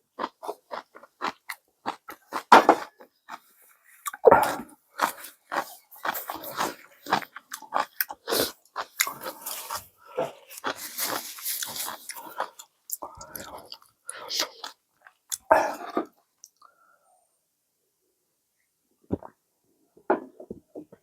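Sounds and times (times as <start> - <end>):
person chewing noodles: 0.0 - 16.7.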